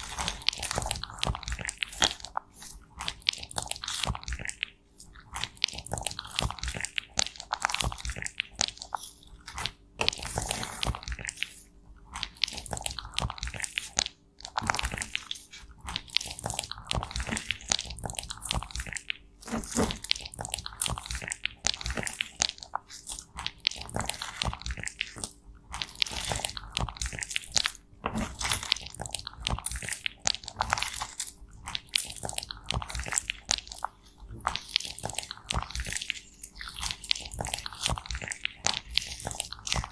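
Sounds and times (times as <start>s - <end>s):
cosmetics crunching and crackling: 0.0s - 39.9s.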